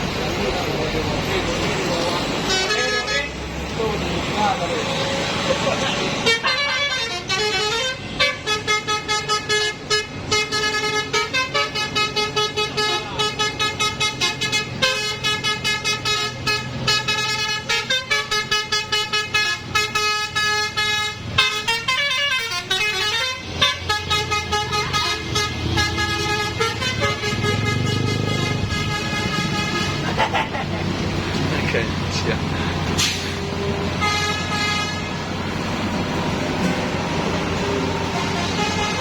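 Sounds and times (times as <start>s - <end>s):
vehicle engine noise: 0.0s - 39.0s
vehicle horn honking: 2.5s - 3.4s, 6.2s - 30.1s, 33.9s - 35.2s, 38.0s - 39.0s.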